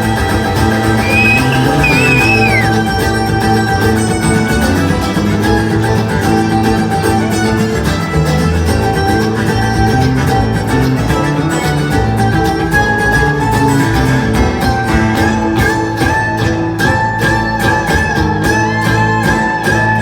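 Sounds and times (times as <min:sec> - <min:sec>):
acoustic guitar picking: 0:00.0 - 0:20.0
fiddle: 0:00.0 - 0:20.0
mandolin picking: 0:00.0 - 0:20.0.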